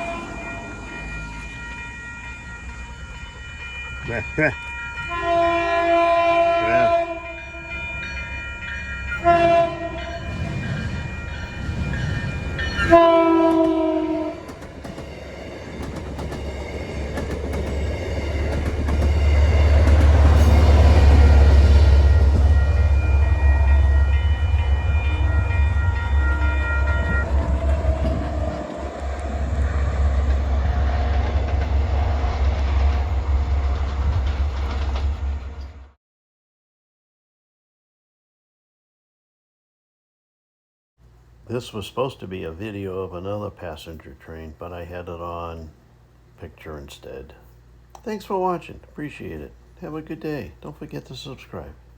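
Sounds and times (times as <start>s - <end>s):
train air horn blasts: 0.0s - 0.6s, 5.1s - 7.8s, 9.1s - 10.2s, 12.8s - 14.6s, 19.1s - 29.6s
train rumbling: 0.0s - 36.0s
rail clatter: 7.8s - 35.8s.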